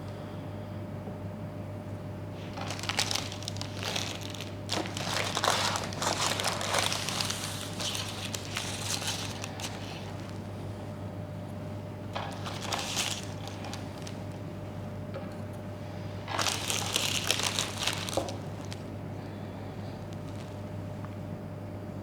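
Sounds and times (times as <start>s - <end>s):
steady low hum: 0.0s - 22.0s
crinkling and scraping: 2.4s - 10.6s, 12.1s - 14.6s, 16.2s - 20.7s.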